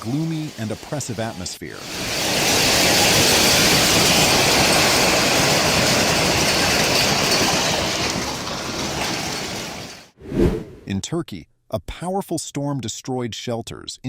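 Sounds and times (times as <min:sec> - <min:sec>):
wind and rain roaring: 0:00.0 - 0:10.7.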